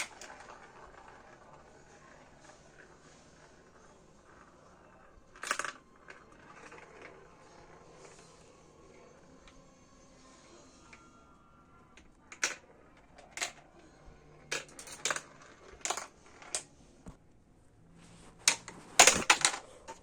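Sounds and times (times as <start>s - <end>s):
plastic marble run clicks: 5.3s - 7.2s, 12.0s - 13.6s, 14.4s - 16.7s
quick plastic clatter: 18.4s - 20.0s.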